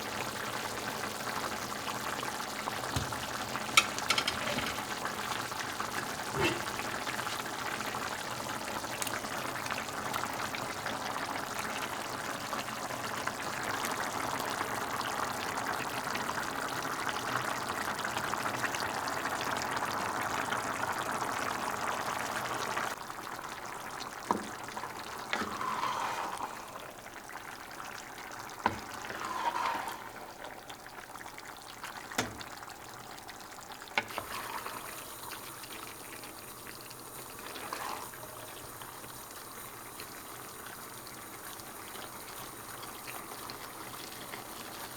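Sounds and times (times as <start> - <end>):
sauce sizzling and bubbling in a pan: 0.0 - 44.9
utensil knocking against pan: 2.9 - 4.9.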